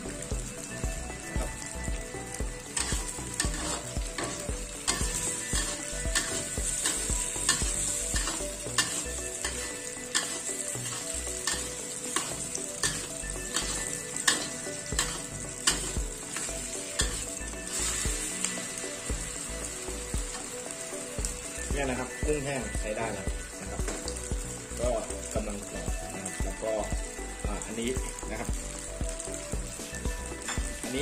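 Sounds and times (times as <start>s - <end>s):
shrimp sizzling in hot oil: 0.0s - 31.0s
spatula scraping a pan: 2.7s - 18.4s.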